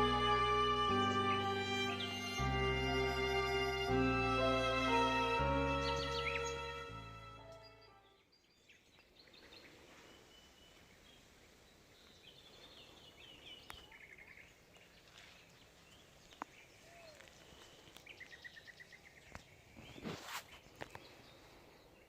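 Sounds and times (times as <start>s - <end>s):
small birds chirping: 4.6s - 22.0s
rustling: 19.8s - 21.1s.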